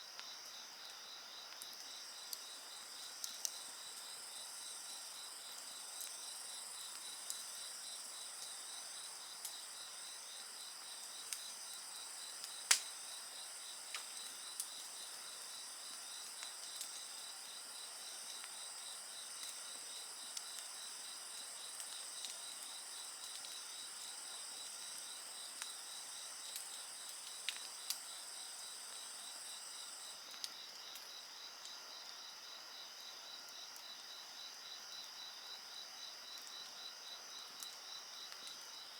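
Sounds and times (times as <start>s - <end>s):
crickets trilling: 0.0s - 38.9s
wood fire crackling and popping: 6.8s - 7.8s, 11.0s - 15.1s, 25.5s - 28.1s.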